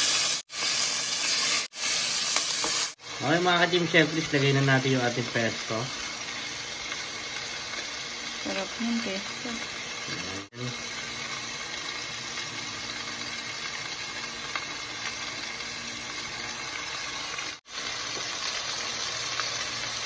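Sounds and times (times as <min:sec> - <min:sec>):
chicken sizzling in a frying pan: 0:00.0 - 0:20.0.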